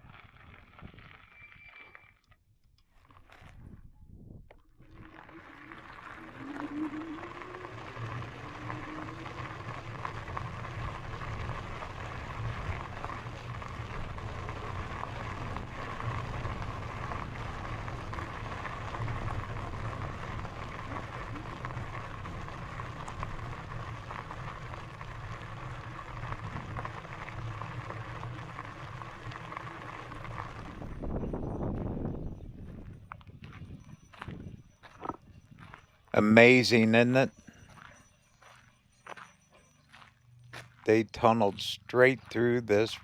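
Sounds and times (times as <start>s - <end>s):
tyres rolling on gravel: 0.0s - 1.6s, 4.8s - 38.5s, 39.1s - 43.0s
electric motor hum: 4.6s - 37.7s.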